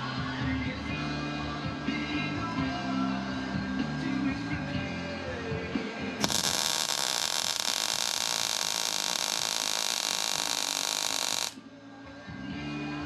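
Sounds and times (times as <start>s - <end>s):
welder arc crackling hiss: 6.2s - 11.6s.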